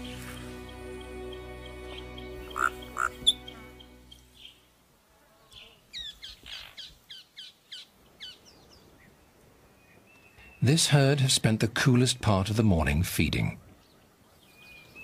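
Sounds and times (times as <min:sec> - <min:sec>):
soft background music: 0:00.0 - 0:04.8
bird chirping sharply: 0:01.3 - 0:04.6.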